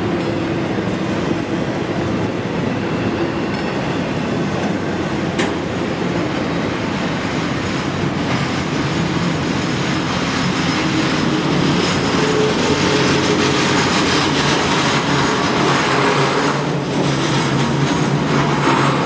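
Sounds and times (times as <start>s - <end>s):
steel wheels rumbling on rail: 0.0s - 19.0s.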